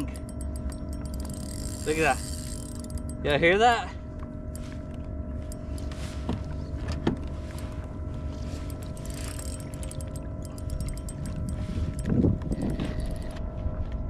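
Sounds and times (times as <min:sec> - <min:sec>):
fishing reel drag clicking: 0:00.0 - 0:03.4, 0:04.5 - 0:04.8, 0:05.4 - 0:06.2, 0:07.4 - 0:13.4
steady mechanical hum: 0:00.0 - 0:14.0.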